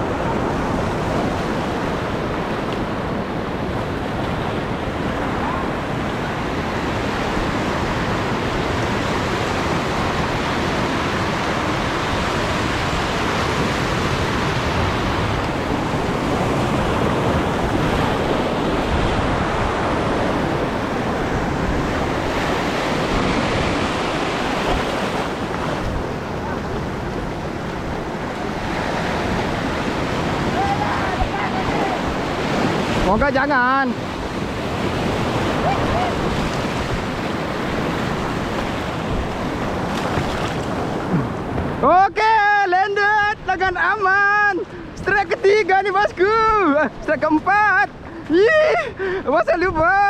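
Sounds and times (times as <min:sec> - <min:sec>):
wind noise on microphone: 0:00.0 - 0:41.8
surf washing over reef: 0:00.0 - 0:50.0.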